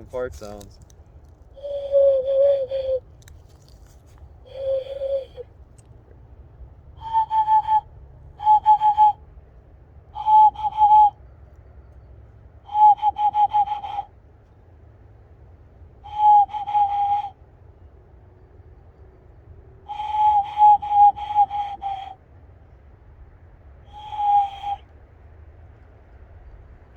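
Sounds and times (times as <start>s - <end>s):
hand whistle owl-like phrases: 1.6s - 3.1s, 4.5s - 5.5s, 7.0s - 9.2s, 10.1s - 11.2s, 12.7s - 14.1s, 16.0s - 17.4s, 19.9s - 22.2s, 23.9s - 24.9s.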